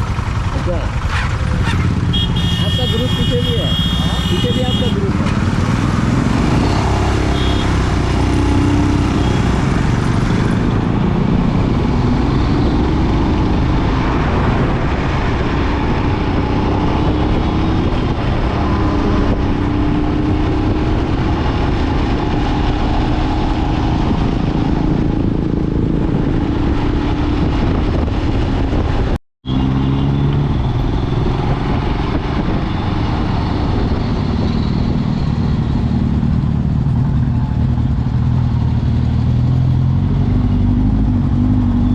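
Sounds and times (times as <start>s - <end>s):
motorcycle engine running: 0.0s - 14.7s.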